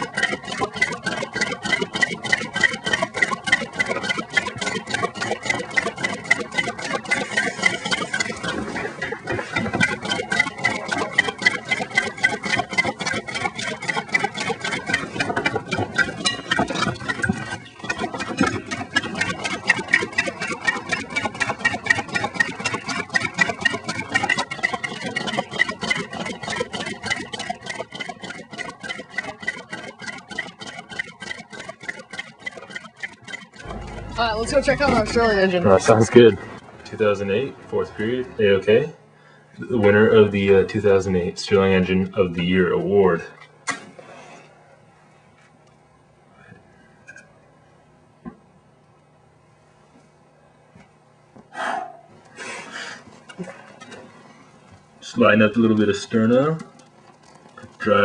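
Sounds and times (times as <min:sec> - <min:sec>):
rapid even clicking: 0:00.0 - 0:35.6
engine running: 0:33.6 - 0:38.6.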